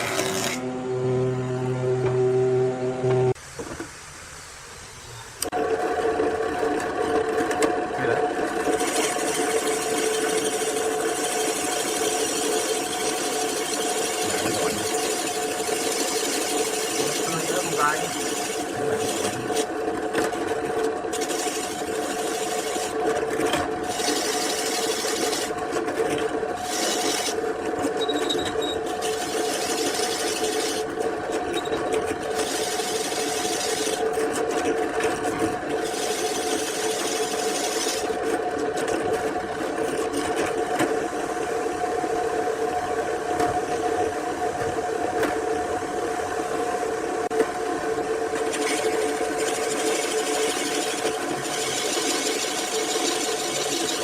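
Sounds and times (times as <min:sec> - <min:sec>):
woodworking machine motor hum: 0:00.0 - 0:04.0, 0:04.7 - 0:54.0.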